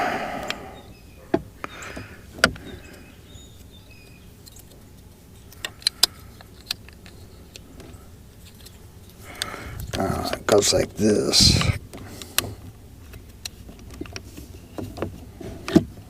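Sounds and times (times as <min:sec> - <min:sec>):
plastic parts clicking together: 0:05.4 - 0:10.4.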